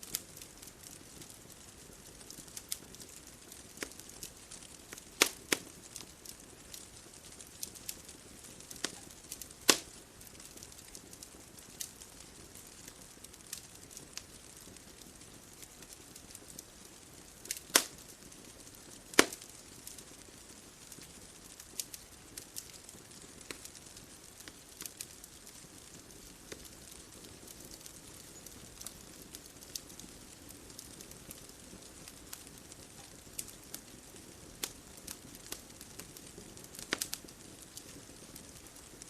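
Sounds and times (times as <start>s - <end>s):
bonfire crackling and popping: 0.0s - 39.0s
soft steady hiss: 0.0s - 39.0s.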